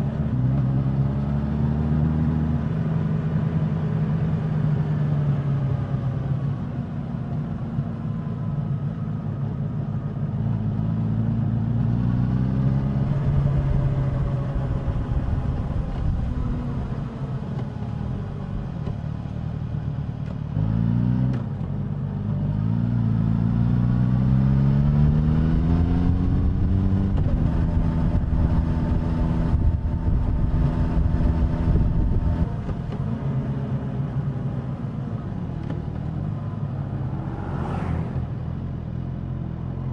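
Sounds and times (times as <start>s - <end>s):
wind and road noise: 0.0s - 39.9s
motorcycle engine revving: 11.8s - 17.4s, 22.8s - 34.6s.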